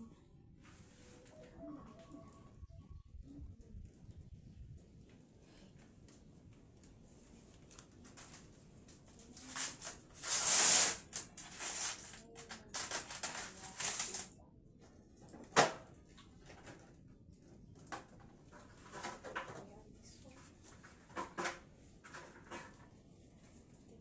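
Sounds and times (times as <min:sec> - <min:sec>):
packaging rustling and crinkling: 0:06.9 - 0:14.4.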